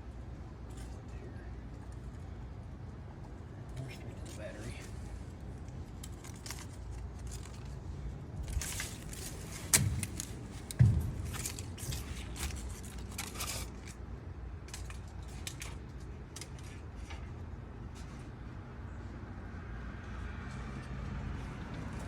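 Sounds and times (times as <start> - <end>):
loud knocks: 9.6 - 12.2.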